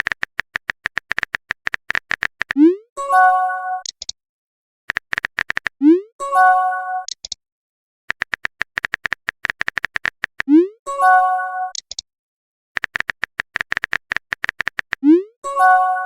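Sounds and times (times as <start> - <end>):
phone keyboard tap clicks: 0.0 - 2.6, 8.1 - 10.5, 12.8 - 15.0.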